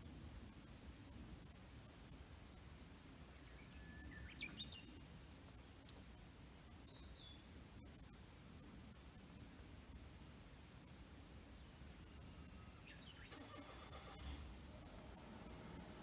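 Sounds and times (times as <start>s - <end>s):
insect trill: 0.0s - 16.0s
bird chirps: 12.5s - 13.4s.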